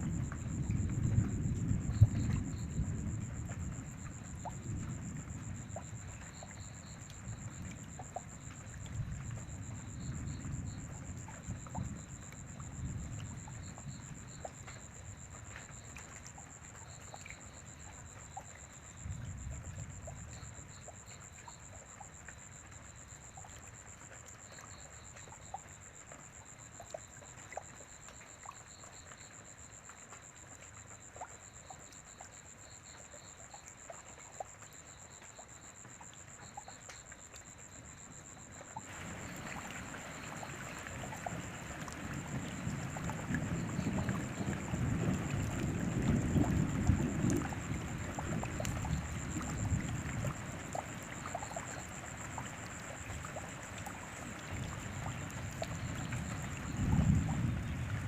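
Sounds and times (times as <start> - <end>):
low rolling thunder: 0.0 - 6.5, 38.9 - 53.4, 54.3 - 58.0
light rain with drips: 0.0 - 58.0.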